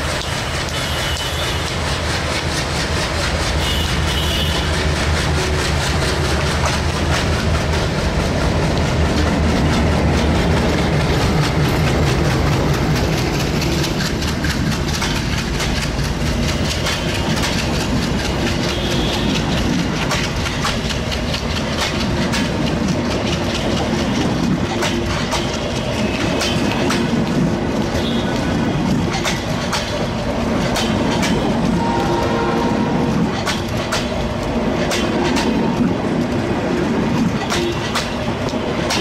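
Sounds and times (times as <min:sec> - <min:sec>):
diesel locomotive engine rumble: 0:00.0 - 0:39.0
train wheels clicking over rail joints: 0:00.0 - 0:39.0.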